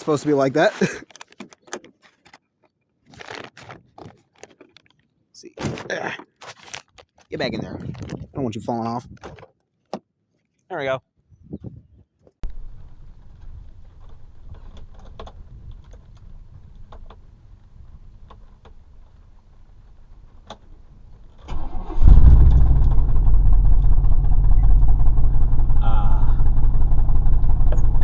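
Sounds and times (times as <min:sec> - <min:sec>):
car engine starting and running: 0:21.3 - 0:28.0
faint low rumble: 0:21.9 - 0:28.0.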